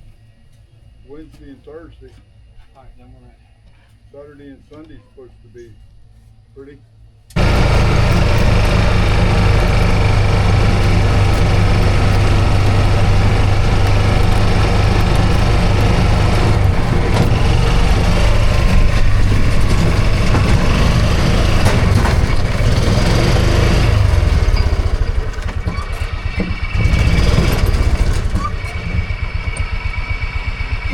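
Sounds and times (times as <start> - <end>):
faint rattles: 7.4 - 30.9
small engine running steadily: 7.4 - 30.9.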